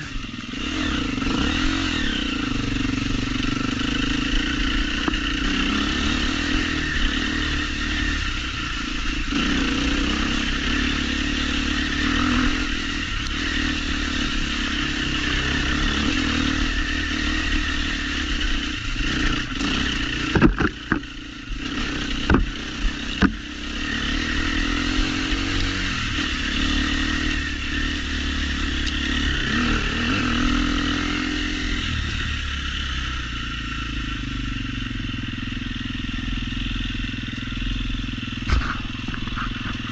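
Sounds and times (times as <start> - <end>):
motorcycle engine running: 0.0 - 39.9
sharp knocks and clatters: 20.2 - 21.1, 22.2 - 22.5.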